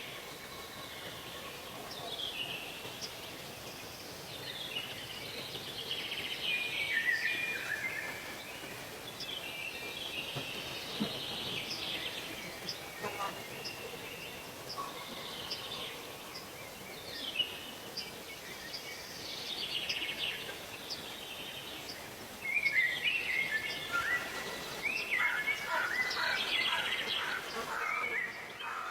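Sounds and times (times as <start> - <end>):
birds singing: 0.0 - 28.9
outdoor background hiss: 0.0 - 28.9.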